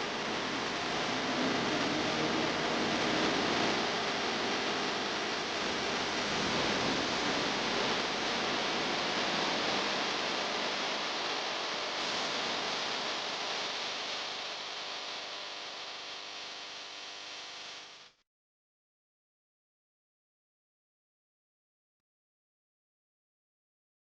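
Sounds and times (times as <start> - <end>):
steady hiss: 0.0 - 16.2.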